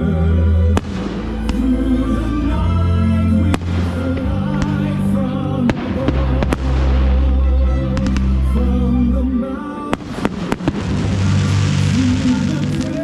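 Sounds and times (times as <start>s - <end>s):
fireworks bangs: 0.8s - 1.8s, 3.5s - 5.0s, 5.7s - 7.3s, 10.0s - 13.0s.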